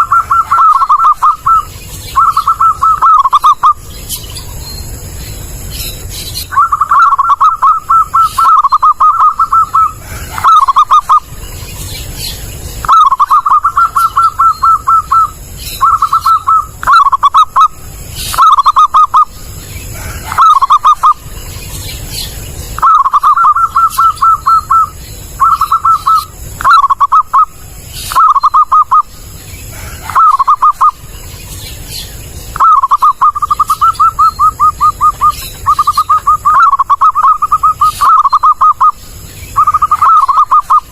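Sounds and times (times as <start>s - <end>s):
dove cooing: 0.0s - 3.8s, 6.4s - 11.4s, 12.2s - 21.3s, 22.8s - 31.1s, 32.6s - 40.9s.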